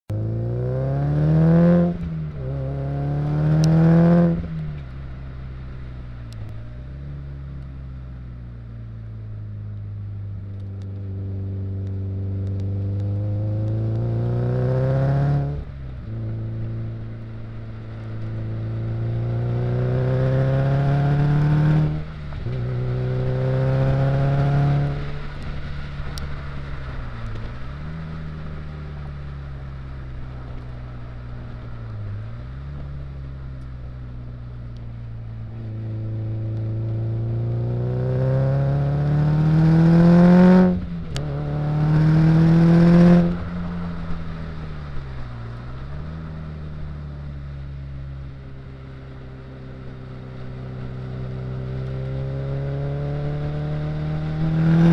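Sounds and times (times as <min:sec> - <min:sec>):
car engine accelerating hard: 0:00.1 - 0:54.9.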